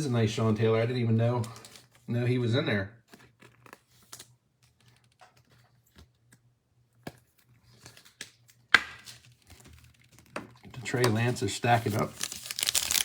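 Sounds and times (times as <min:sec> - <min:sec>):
foil wrappers crinkling: 0:07.7 - 0:13.0
cards and wrappers clicking: 0:09.3 - 0:13.0.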